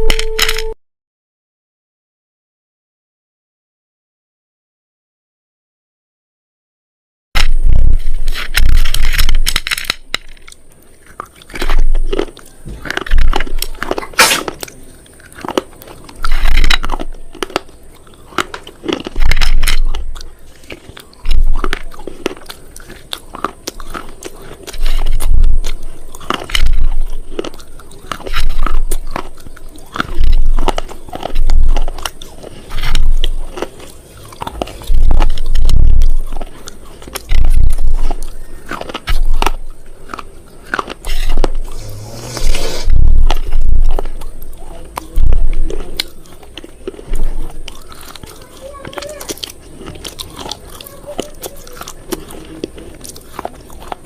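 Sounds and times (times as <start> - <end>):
brittle crunches with low thump: 7.4 - 10.6, 11.5 - 14.8, 15.4 - 17.7, 18.4 - 23.0, 23.8 - 29.4, 30.0 - 33.8, 34.4 - 48.2.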